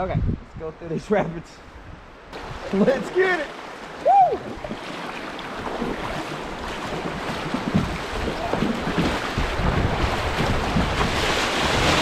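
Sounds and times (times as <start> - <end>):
wind buffeting microphone: 0.0 - 0.8, 3.8 - 12.0
rushing whitewater rapids: 2.4 - 12.0
water knocking against hull: 3.8 - 12.0.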